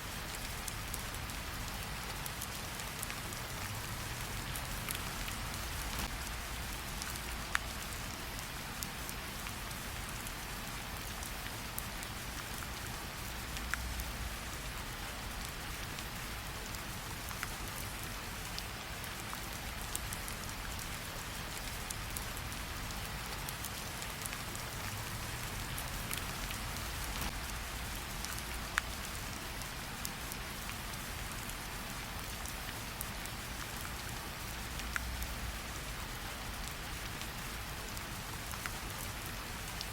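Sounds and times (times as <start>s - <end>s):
steady rain falling: 0.0s - 39.9s
campfire crackling and popping: 4.3s - 6.3s, 25.2s - 28.9s.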